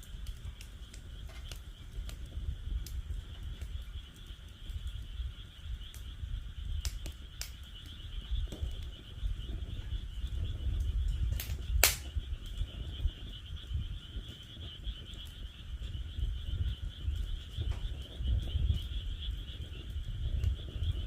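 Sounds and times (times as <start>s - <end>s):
frogs calling: 0.0s - 21.0s
low rumble of flames: 0.0s - 21.0s
wood fire crackling and popping: 0.0s - 21.0s.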